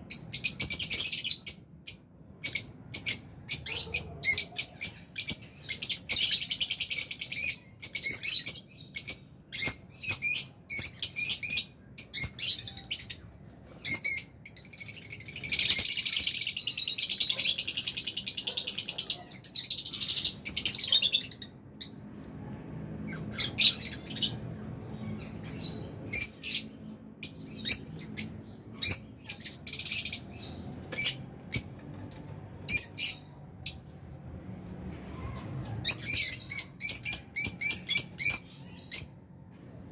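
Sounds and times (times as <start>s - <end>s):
lovebirds chirping: 0.0s - 22.0s, 23.0s - 31.9s, 32.6s - 33.9s, 35.8s - 39.2s.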